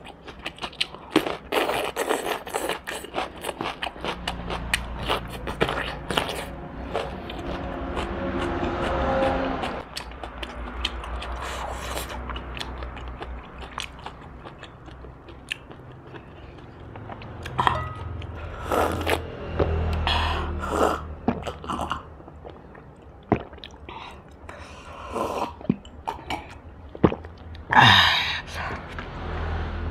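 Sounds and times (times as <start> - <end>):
biting and chewing food: 0.0 - 20.0.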